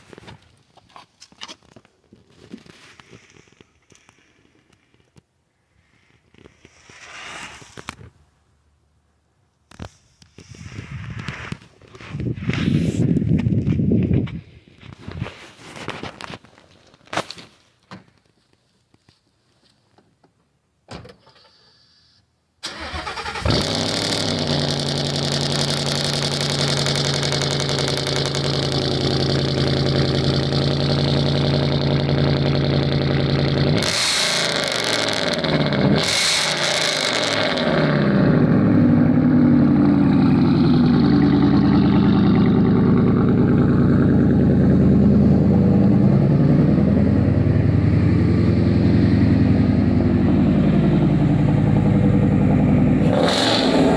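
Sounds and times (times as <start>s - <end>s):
car engine cranking and starting: 22.6s - 53.9s
car engine idling: 22.7s - 33.8s, 37.8s - 53.1s
car engine revving: 22.8s - 53.9s.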